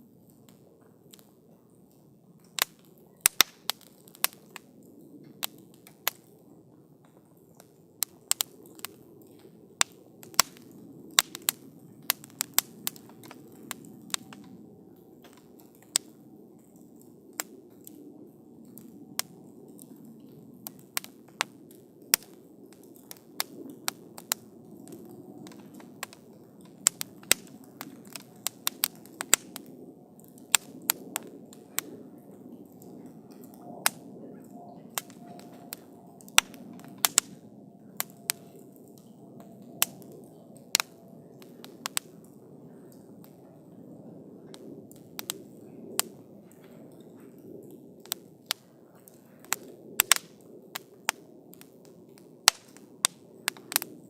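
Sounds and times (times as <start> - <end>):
wood crackling and popping: 0.0 - 54.0
flame rushing: 9.8 - 14.4, 22.1 - 29.8, 35.0 - 37.3.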